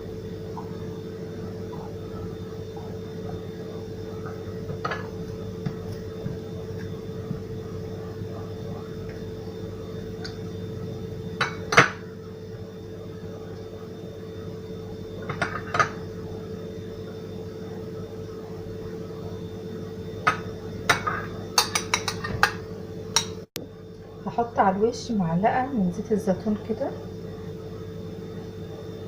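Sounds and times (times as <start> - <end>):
steady low hum: 0.0 - 29.0
dishes and utensils clinking: 20.3 - 22.6.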